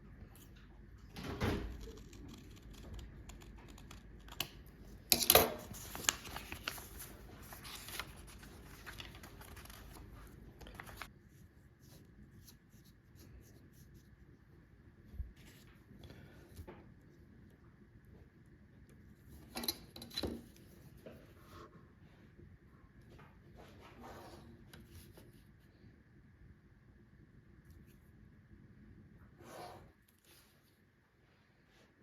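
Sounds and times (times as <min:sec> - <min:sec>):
scissors snipping paper: 0:01.7 - 0:06.8
paper rustling: 0:05.4 - 0:13.6.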